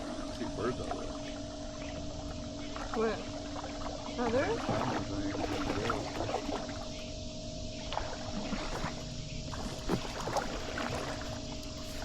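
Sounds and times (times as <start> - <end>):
paddle strokes in water: 0.0 - 7.0, 7.7 - 12.0
low hum and rumble: 0.0 - 12.0
small splashes and drips: 2.6 - 7.0, 7.8 - 12.0.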